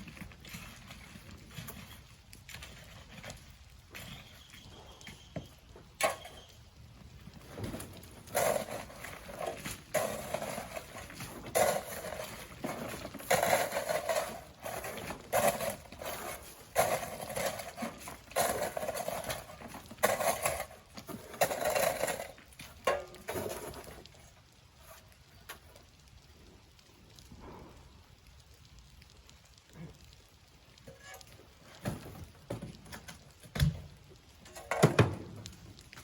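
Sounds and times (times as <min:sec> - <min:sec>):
shovel scraping and tossing sand: 0:07.5 - 0:24.0.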